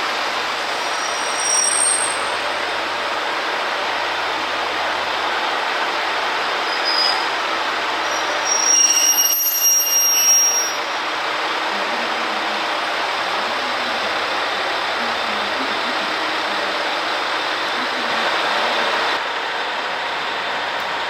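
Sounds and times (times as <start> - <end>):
train running on tracks: 0.0 - 21.0
high-pitched wheel squeal: 0.7 - 2.6, 6.7 - 7.4, 8.0 - 10.9.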